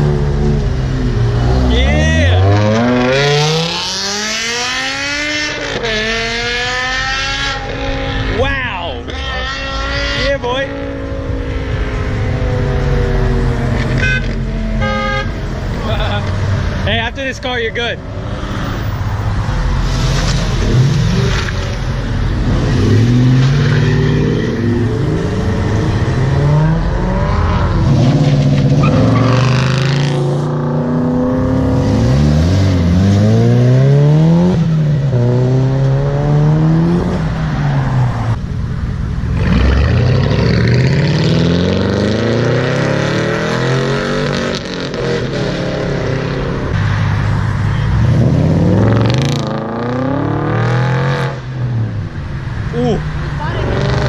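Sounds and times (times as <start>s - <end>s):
car engine revving: 0.0s - 16.9s, 17.9s - 38.6s, 39.2s - 54.0s.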